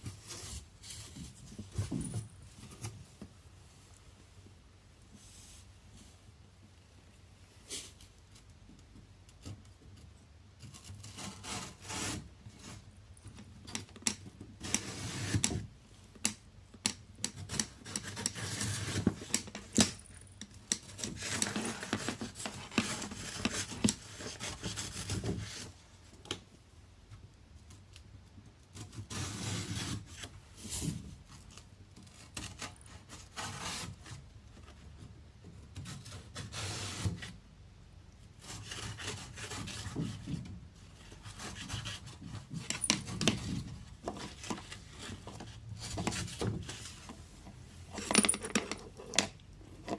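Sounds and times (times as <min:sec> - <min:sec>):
rubbing and scraping on wood: 0:07.7 - 0:12.9, 0:14.6 - 0:15.7, 0:20.7 - 0:25.8, 0:28.7 - 0:37.4, 0:38.4 - 0:49.9.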